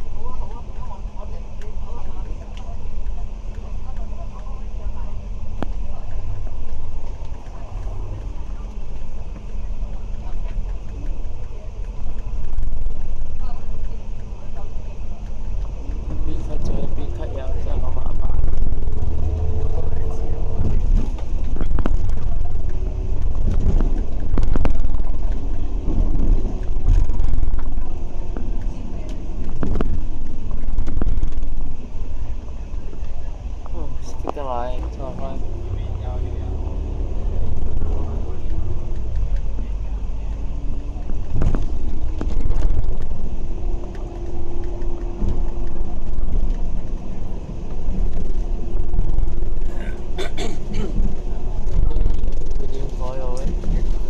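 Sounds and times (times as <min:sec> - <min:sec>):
bus engine and road rumble: 0:00.0 - 0:54.0
faint whine: 0:00.0 - 0:54.0
bodywork rattles and knocks: 0:15.3 - 0:31.8, 0:37.1 - 0:54.0.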